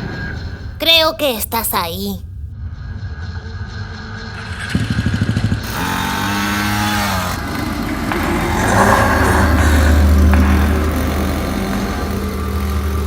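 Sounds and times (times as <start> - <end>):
minibike engine revving: 4.8 - 13.0.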